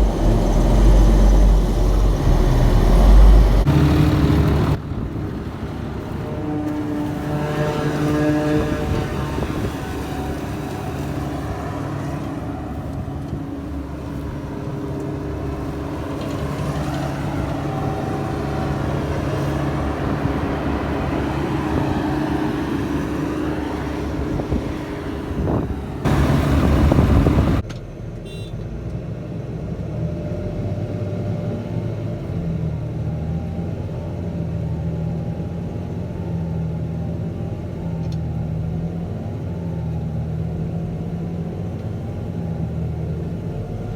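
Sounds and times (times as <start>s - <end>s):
loud rushing noise: 0.0s - 4.8s
heavy diesel engines running: 0.0s - 43.9s.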